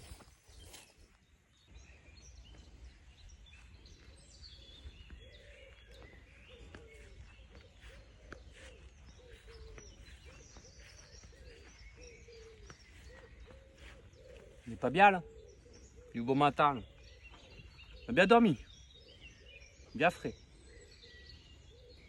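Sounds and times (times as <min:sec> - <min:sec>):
dove cooing: 0:05.3 - 0:16.3.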